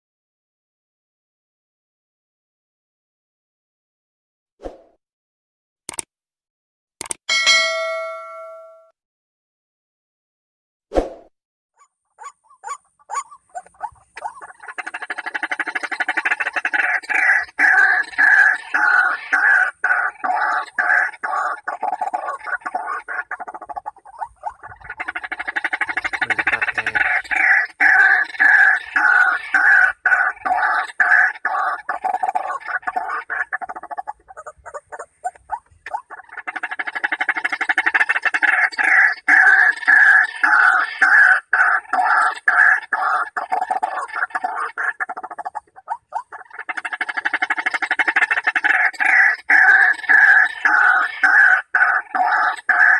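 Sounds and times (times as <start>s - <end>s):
waterhen calling: 12.2s - 52.9s.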